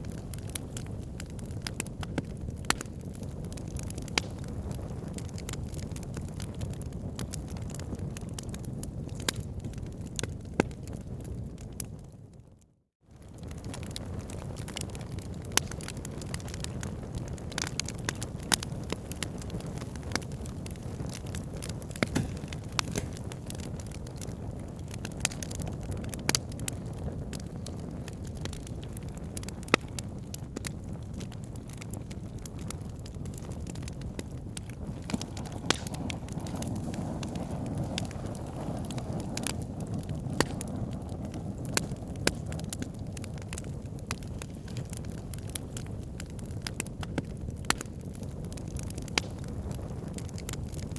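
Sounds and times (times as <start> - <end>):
fireplace fire crackling: 0.0 - 12.1, 13.2 - 50.9.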